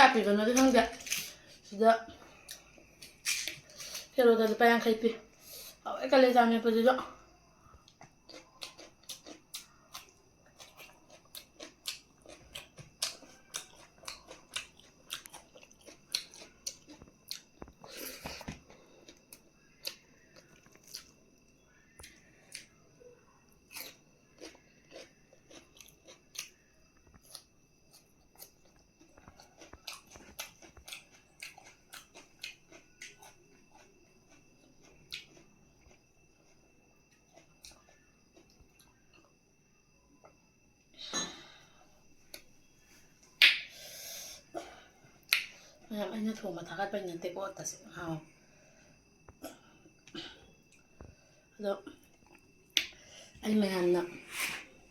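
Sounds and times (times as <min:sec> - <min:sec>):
chewing and biting food: 0:07.8 - 0:21.2, 0:23.7 - 0:39.3.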